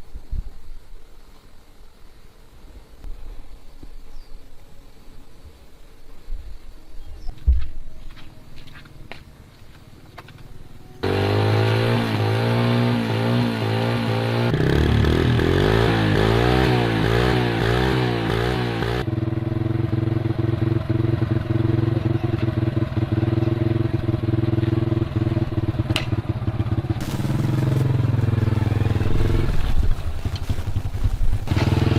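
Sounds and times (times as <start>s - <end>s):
small motorcycle engine revving: 11.0s - 31.9s.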